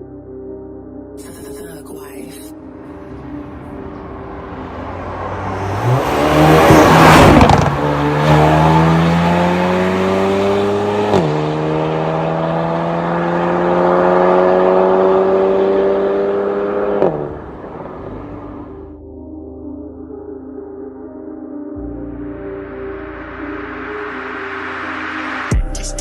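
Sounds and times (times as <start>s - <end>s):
car engine accelerating hard: 3.2s - 18.8s.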